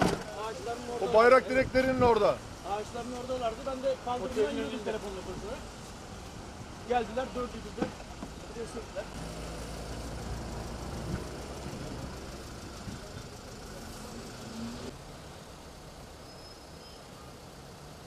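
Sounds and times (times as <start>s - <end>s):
street traffic: 0.0s - 18.0s
vehicle engine idling: 6.8s - 16.1s.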